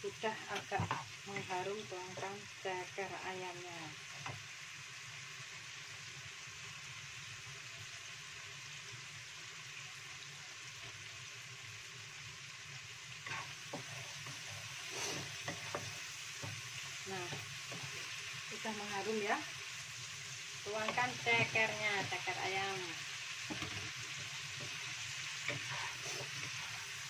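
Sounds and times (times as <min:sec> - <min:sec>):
paste sizzling in hot oil: 0:00.0 - 0:27.0
spatula stirring and scraping: 0:13.2 - 0:27.0.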